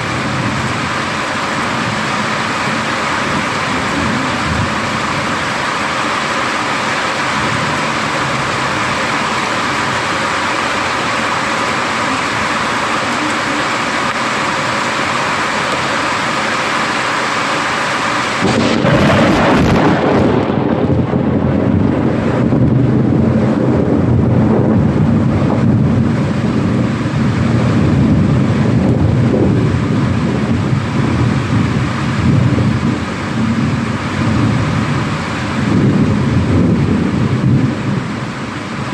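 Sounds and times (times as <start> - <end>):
thunder crack and rumble: 0.0 - 5.8, 18.4 - 38.9
heavy rain: 0.0 - 38.9.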